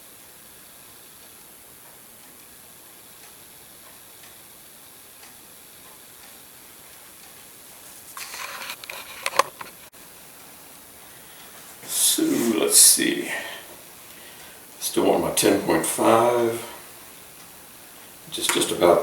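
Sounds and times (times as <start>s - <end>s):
low steady hiss: 0.0s - 19.0s
small hard parts clicking: 8.2s - 9.9s.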